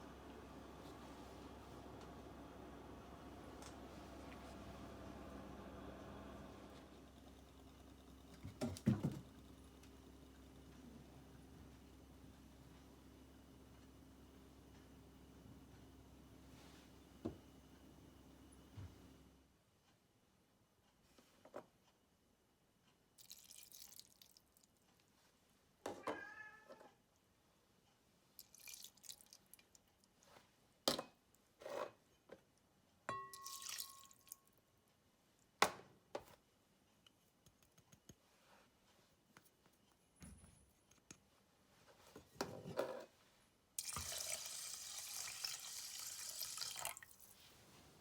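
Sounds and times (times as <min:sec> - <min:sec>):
tap running water: 0:43.8 - 0:47.2.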